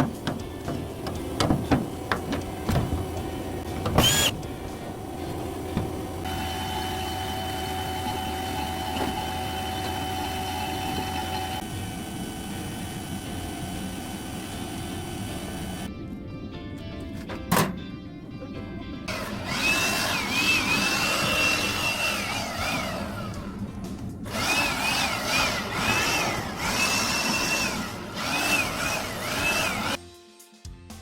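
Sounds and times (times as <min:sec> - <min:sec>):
small motor whining: 0:03.7 - 0:04.5, 0:05.7 - 0:15.9, 0:19.1 - 0:30.0.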